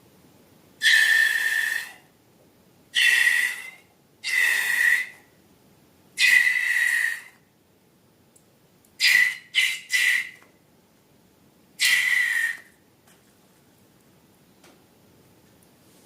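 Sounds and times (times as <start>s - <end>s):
air squealing from balloon neck: 0.8s - 2.0s, 3.0s - 5.2s, 6.2s - 7.4s, 9.0s - 10.4s, 11.8s - 12.7s.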